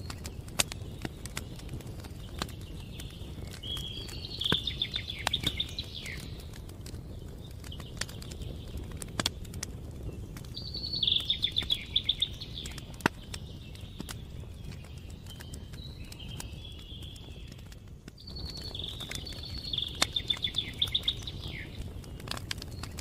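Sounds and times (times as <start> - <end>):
campfire crackling and popping: 0.0 - 23.0
songbird trilling: 2.9 - 6.4, 10.6 - 13.0, 18.4 - 21.8.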